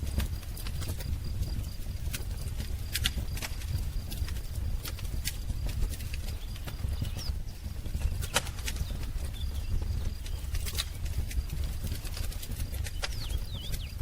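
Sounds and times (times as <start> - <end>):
wood fire crackling: 0.0 - 14.0
faint bird chirps: 6.3 - 11.1, 12.8 - 14.0.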